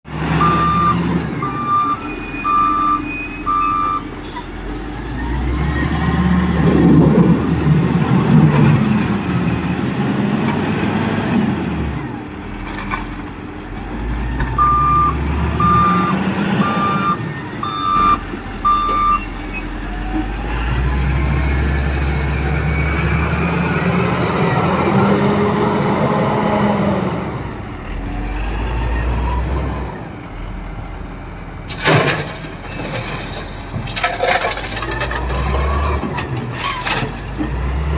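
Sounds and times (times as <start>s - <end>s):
diesel engine revving: 0.0s - 37.9s
reversing alarm beeps: 0.4s - 4.1s, 14.6s - 19.4s.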